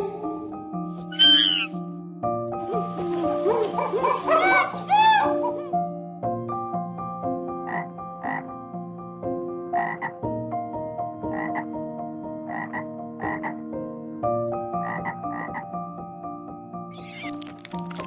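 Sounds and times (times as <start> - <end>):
background music with held notes: 0.0 - 18.0
frog croaking: 1.1 - 1.8, 7.6 - 8.7, 9.7 - 10.2, 11.3 - 11.7, 12.4 - 13.7, 14.8 - 15.8, 17.0 - 18.0.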